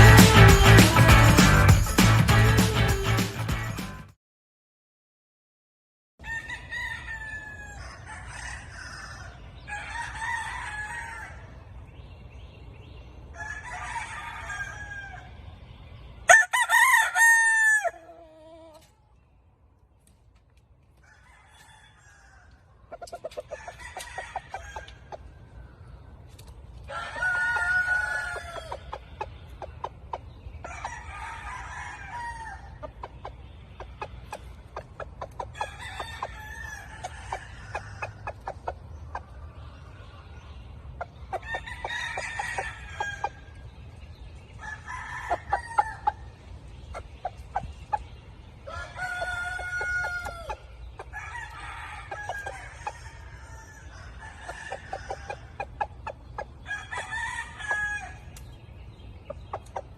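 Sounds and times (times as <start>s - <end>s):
roosters crowing: 0.0s - 3.8s, 6.2s - 11.8s, 13.2s - 15.4s, 16.3s - 18.9s, 21.0s - 22.8s, 23.5s - 25.4s, 26.8s - 29.0s, 30.6s - 33.0s, 35.4s - 38.5s, 41.3s - 43.6s, 44.5s - 46.4s, 48.6s - 58.4s.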